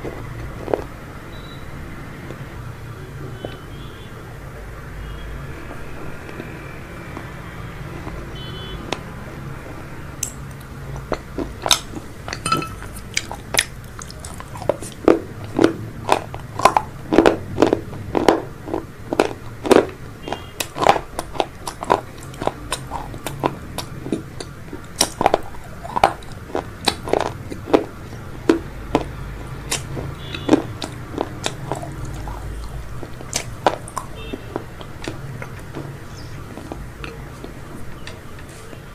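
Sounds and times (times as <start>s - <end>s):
person chewing crunchy food: 0.0s - 2.5s, 5.6s - 38.9s
low steady hum: 11.0s - 15.6s.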